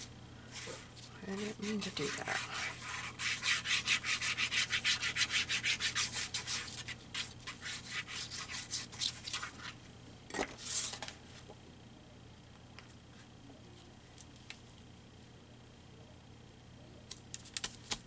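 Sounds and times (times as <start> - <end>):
paper rubbing strokes: 0.0 - 9.8.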